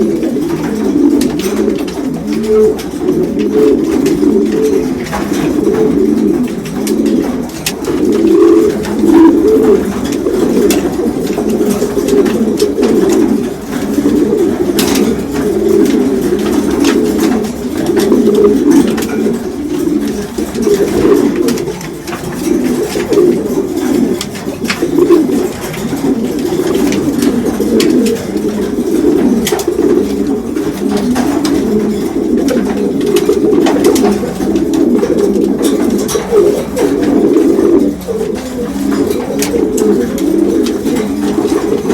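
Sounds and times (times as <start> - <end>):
pigeons cooing: 0.0 - 41.9.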